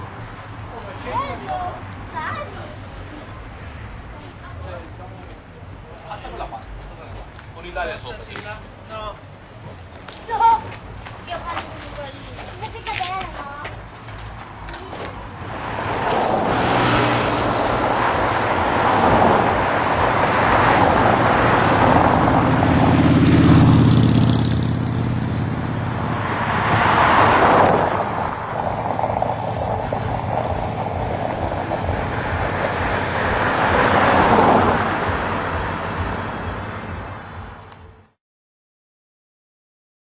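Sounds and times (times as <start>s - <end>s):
heavy trucks driving past: 10.8s - 38.2s.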